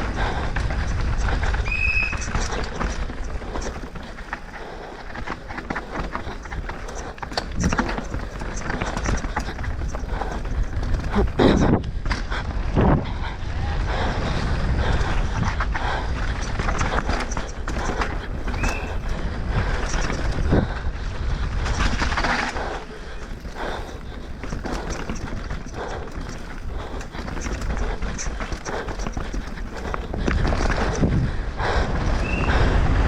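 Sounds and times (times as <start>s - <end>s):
bike knocking and rattling: 0.0s - 12.9s, 14.3s - 31.8s
wind rushing on microphone: 6.0s - 33.0s.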